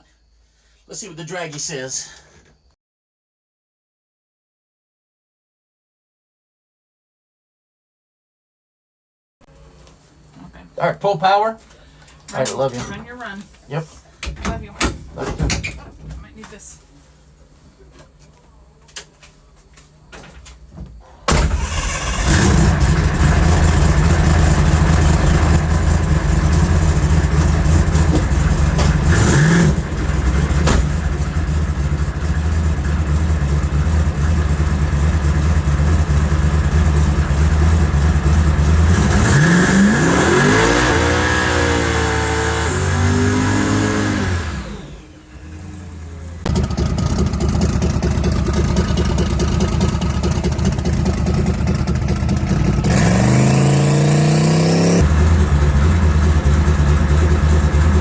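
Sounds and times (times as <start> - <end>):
drag car engine running: 21.5 - 39.9, 44.1 - 58.0.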